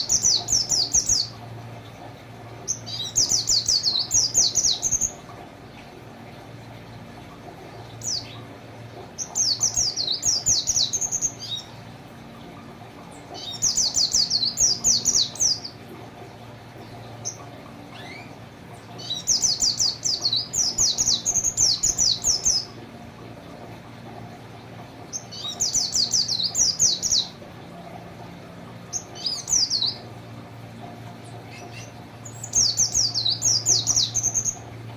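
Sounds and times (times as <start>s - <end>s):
white-eye bird singing: 0.0s - 5.9s, 7.5s - 12.0s, 13.1s - 15.8s, 16.8s - 22.8s, 25.0s - 27.8s, 28.8s - 30.2s, 31.2s - 34.8s.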